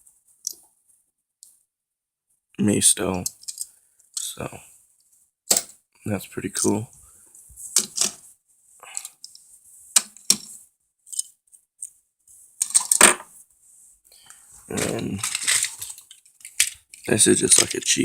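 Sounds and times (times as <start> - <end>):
toy vehicles clicking and clattering: 3.2 - 4.3, 10.0 - 11.3, 12.6 - 13.1, 14.8 - 18.0.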